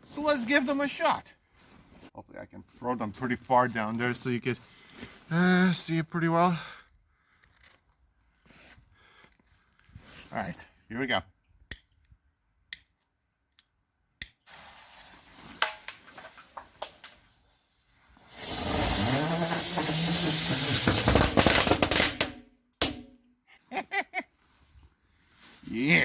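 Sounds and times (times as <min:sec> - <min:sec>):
sparkler fizzing and hissing: 0:14.5 - 0:22.0.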